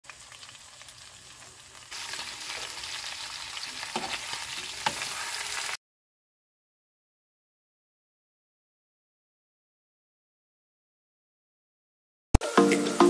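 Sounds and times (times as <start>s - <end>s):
food sizzling in hot oil: 0.0s - 5.8s.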